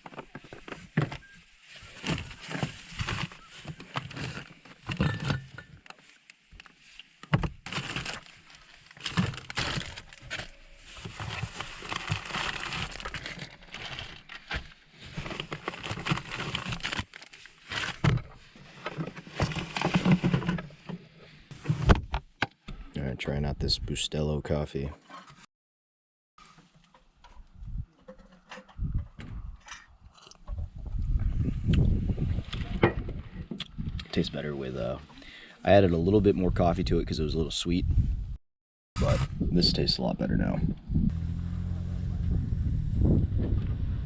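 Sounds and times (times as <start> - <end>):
rustling: 0.0 - 21.9.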